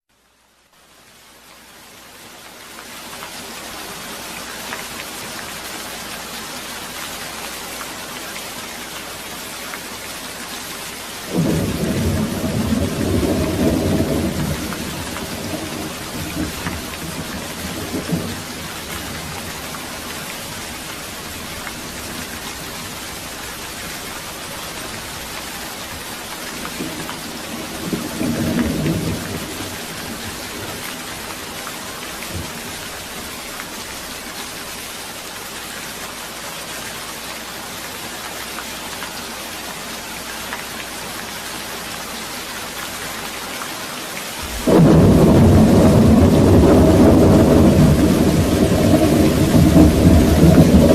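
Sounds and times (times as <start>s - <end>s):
steady rain hissing: 0.1s - 50.9s
thunder rumbling: 11.3s - 26.0s, 26.6s - 30.8s, 44.4s - 50.9s.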